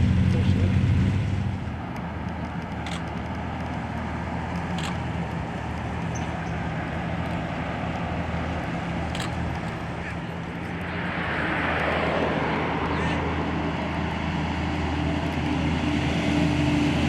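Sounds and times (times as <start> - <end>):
car engine running: 0.0 - 15.8
brief clicks: 1.9 - 8.0.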